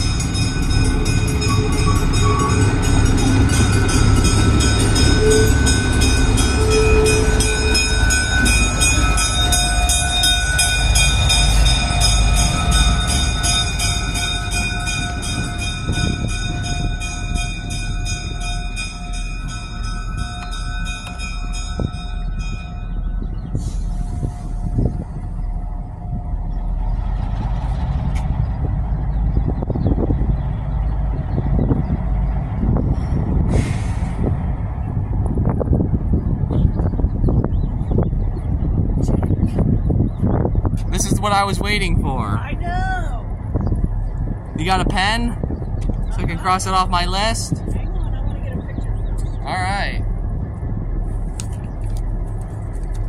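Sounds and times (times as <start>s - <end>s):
locomotive bell ringing: 0.0s - 27.0s
diesel train rumbling: 0.0s - 53.0s.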